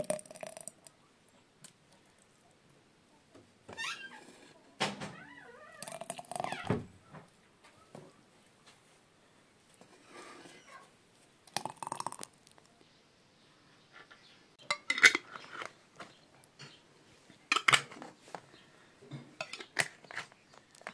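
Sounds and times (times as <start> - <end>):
kitchenware clinking: 14.6 - 15.4, 17.5 - 18.0, 19.1 - 20.2.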